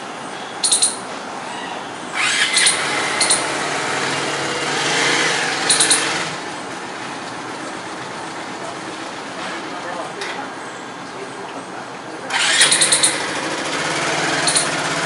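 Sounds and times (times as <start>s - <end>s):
traffic noise: 0.0s - 15.0s
squirrel chirping: 0.5s - 3.7s, 5.6s - 6.4s, 12.4s - 13.2s, 14.4s - 14.8s
vehicle passing: 2.1s - 9.6s, 12.3s - 15.0s.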